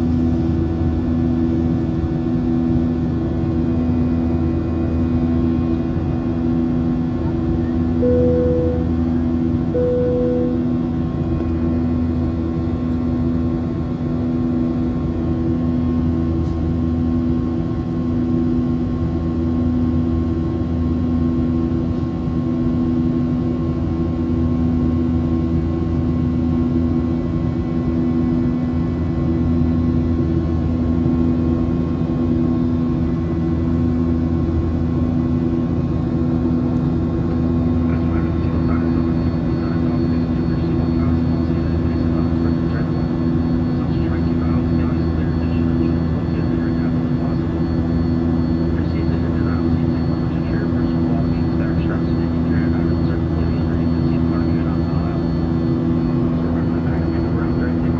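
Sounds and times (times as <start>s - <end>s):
airliner cabin drone: 0.0s - 57.9s
low beating throb: 8.0s - 11.0s.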